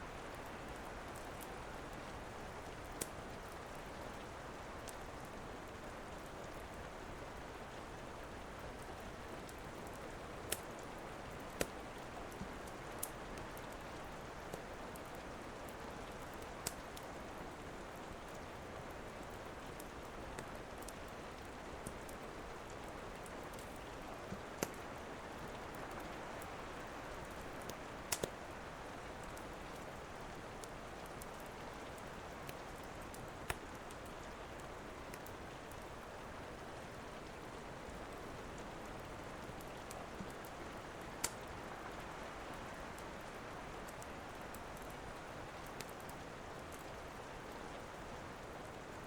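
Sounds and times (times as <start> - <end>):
rain hiss: 0.0 - 49.0
wood fire crackling and popping: 0.3 - 3.8, 8.7 - 17.2, 19.2 - 36.1, 39.0 - 41.9, 42.5 - 46.9.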